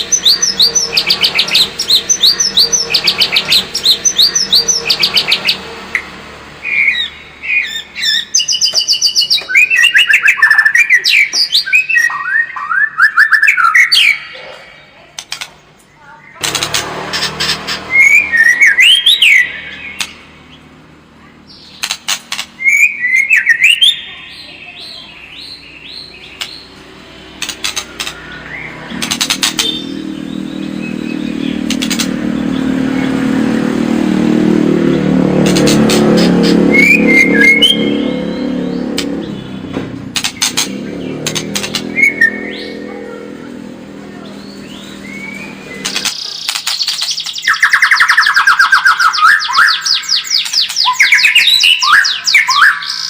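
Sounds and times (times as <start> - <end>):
bird whistled song: 0.0 - 5.6, 6.6 - 14.4, 17.2 - 20.2, 22.6 - 26.7, 36.2 - 39.6, 41.0 - 42.9, 44.2 - 53.0
rapid clicking rattles: 27.4 - 28.2, 40.1 - 41.9.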